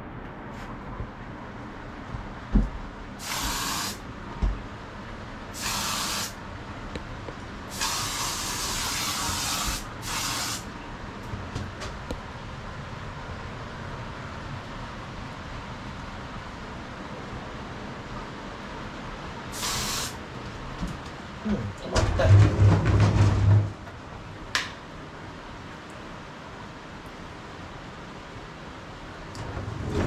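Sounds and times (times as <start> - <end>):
spray hissing: 3.2 - 4.0, 5.6 - 6.4, 7.7 - 10.7, 19.5 - 20.2.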